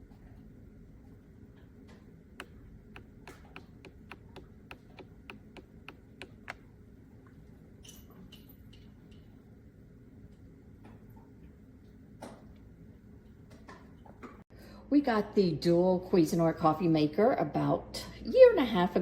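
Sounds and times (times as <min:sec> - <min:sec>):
low steady hum: 0:00.0 - 0:16.3
faint regular clicks: 0:02.4 - 0:06.7.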